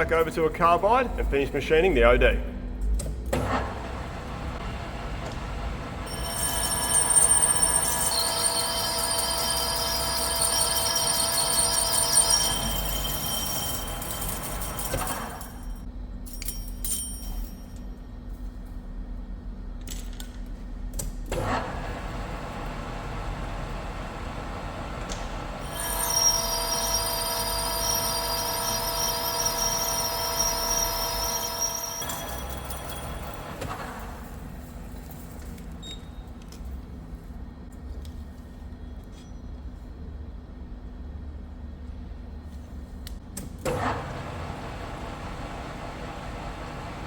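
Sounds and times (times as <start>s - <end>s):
lathe machine hum: 3.7s - 14.6s, 21.6s - 34.2s, 44.0s - 47.0s
high ringing cutting tones: 6.0s - 15.8s, 25.6s - 33.6s.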